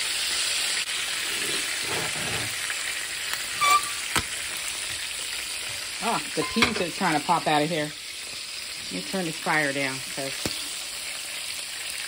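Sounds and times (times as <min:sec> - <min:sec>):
food sizzling in oil: 0:00.0 - 0:12.0
oil popping: 0:00.9 - 0:09.0.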